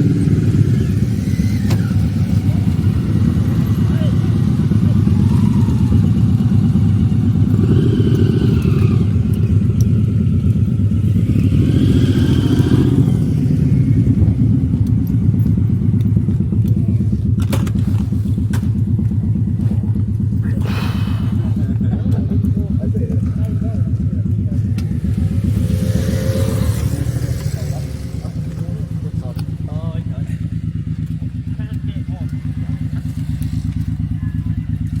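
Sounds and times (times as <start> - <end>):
motorcycle engine rumbling: 0.0 - 35.0.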